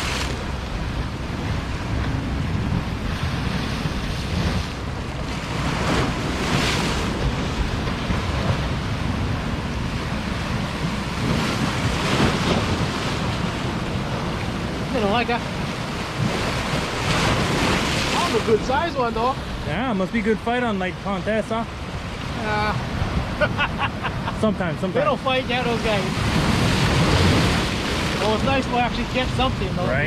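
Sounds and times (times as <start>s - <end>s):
surf washing on shore: 0.0s - 30.0s
wind buffeting microphone: 0.0s - 30.0s.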